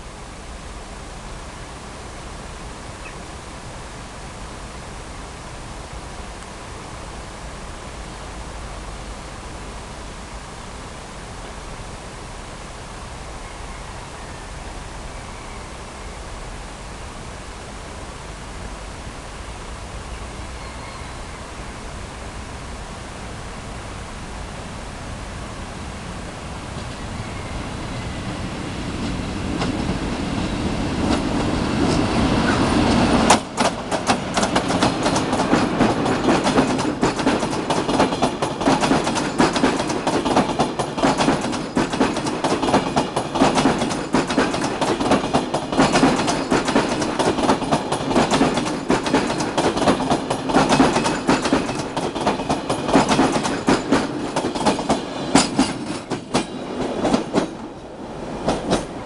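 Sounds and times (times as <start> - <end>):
train rushing past: 11.6 - 59.0
wheels clattering over rail joints: 29.0 - 59.0.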